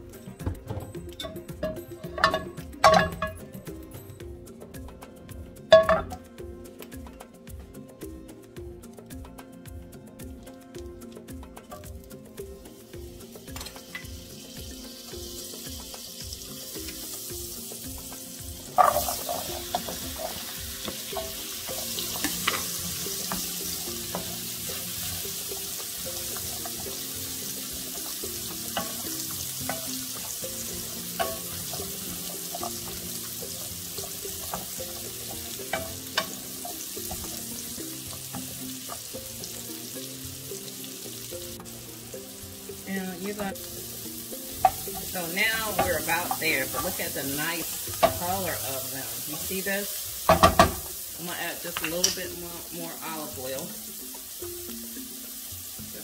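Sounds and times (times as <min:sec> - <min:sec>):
butter sizzling in oil: 0:00.0 - 0:56.0
faint background music: 0:00.0 - 0:56.0
squash sizzling in a pan: 0:08.9 - 0:56.0
utensil clicking against pan: 0:18.7 - 0:39.5, 0:51.7 - 0:52.3.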